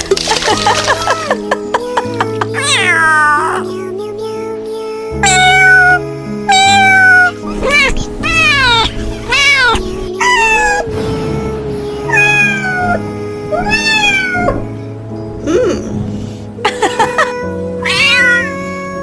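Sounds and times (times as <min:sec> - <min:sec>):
background music with held notes: 0:00.0 - 0:19.0
kitten meowing: 0:02.6 - 0:03.6, 0:05.2 - 0:10.9, 0:12.1 - 0:14.6, 0:17.3 - 0:19.0.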